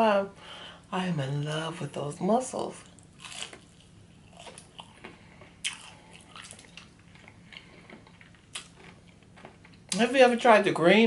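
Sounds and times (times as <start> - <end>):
chewing crispy fried shrimp: 2.8 - 10.0.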